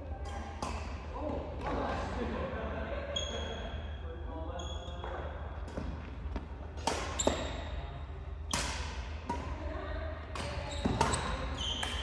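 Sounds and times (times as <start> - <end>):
rackets smacking shuttlecock: 0.2 - 1.8, 5.0 - 7.6, 8.4 - 9.6, 10.3 - 12.0.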